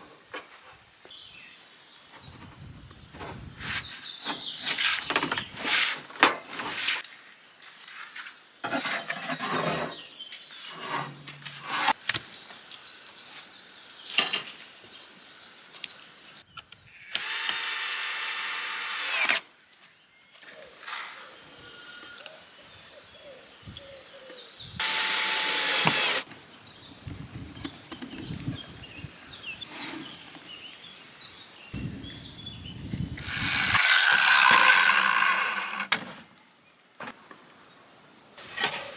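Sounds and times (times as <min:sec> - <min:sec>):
power drill running: 0:17.1 - 0:19.4, 0:24.8 - 0:26.3, 0:33.2 - 0:35.9
high insect trill: 0:24.6 - 0:29.7, 0:31.6 - 0:38.9.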